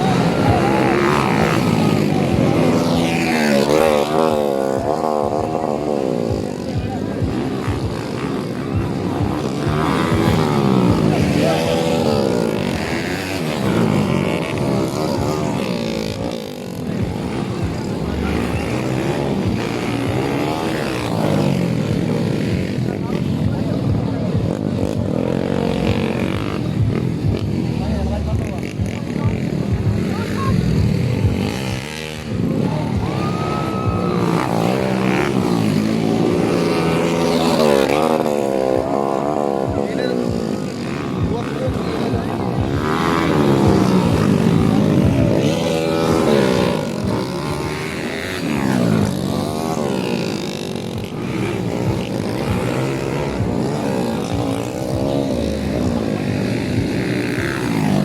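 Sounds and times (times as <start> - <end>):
motocross engines revving: 0.0 - 58.0.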